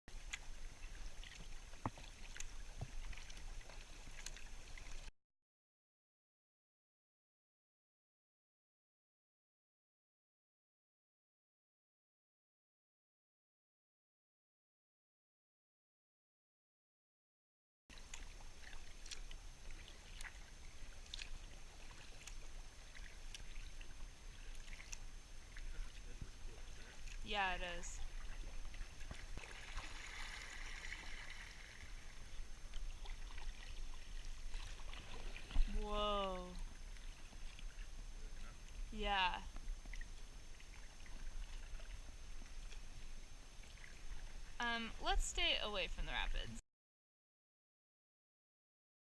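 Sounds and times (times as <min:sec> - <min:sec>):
paddle dipping and dripping: 0:00.1 - 0:05.1, 0:17.9 - 0:46.1
water splashes: 0:00.1 - 0:05.1, 0:17.9 - 0:46.6.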